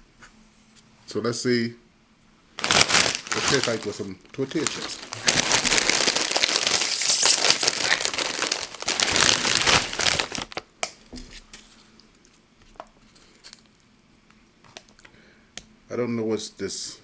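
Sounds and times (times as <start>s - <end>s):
chip bag crinkling: 2.6s - 10.7s.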